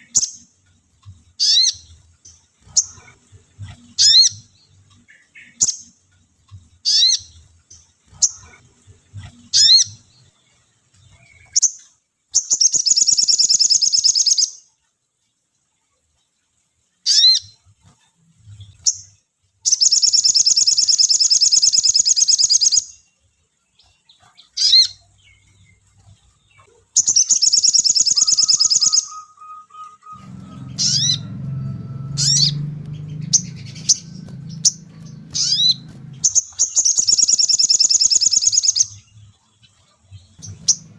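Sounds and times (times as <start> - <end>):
bird chirping and trilling: 0.0 - 14.7, 17.0 - 17.6, 18.5 - 23.1, 23.8 - 40.9
low rumbling noise: 29.8 - 37.0, 40.1 - 40.9.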